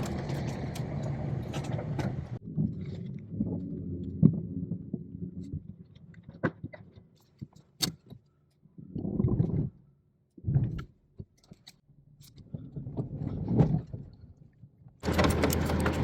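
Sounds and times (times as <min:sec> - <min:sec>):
low mechanical running: 0:00.0 - 0:02.4, 0:15.0 - 0:16.0
metallic clicks and knocks: 0:15.0 - 0:16.0.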